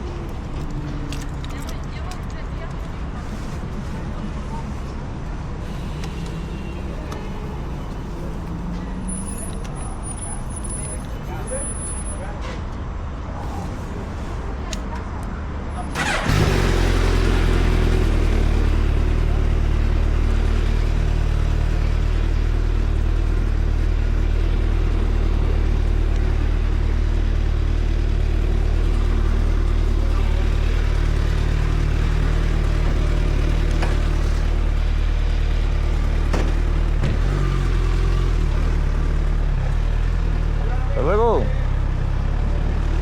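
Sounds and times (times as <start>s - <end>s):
motorcycle engine running steadily: 16.0s - 43.0s.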